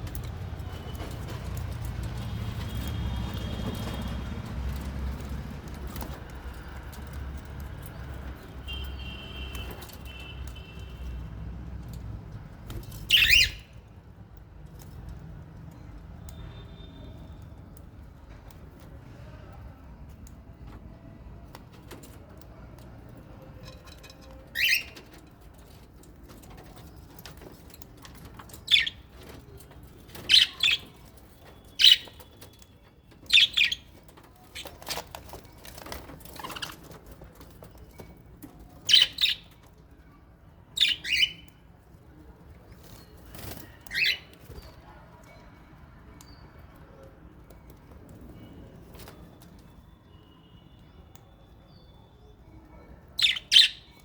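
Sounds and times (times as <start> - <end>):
parrots shrill calls: 13.1 - 13.6.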